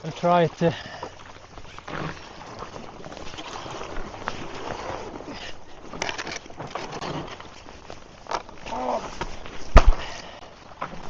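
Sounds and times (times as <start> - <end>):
ice knocks and clicks: 5.8 - 10.2.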